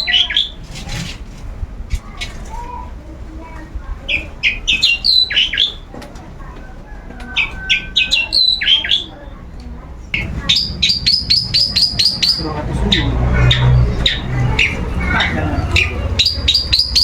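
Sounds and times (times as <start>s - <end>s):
bird harsh chattering song: 0.0s - 0.6s, 4.0s - 5.9s, 7.4s - 17.0s.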